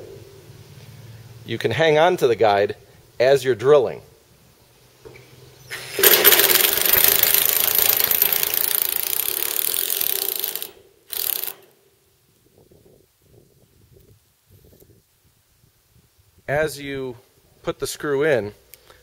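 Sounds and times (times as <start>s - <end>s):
impact driver driving a screw: 5.7s - 11.7s.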